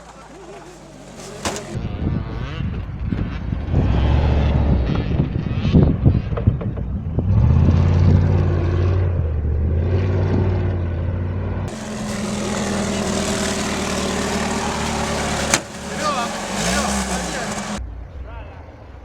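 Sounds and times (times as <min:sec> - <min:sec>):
truck engine under load: 0:00.0 - 0:01.8, 0:11.6 - 0:17.8
higher-pitched vehicle engine with hiss: 0:11.7 - 0:17.8.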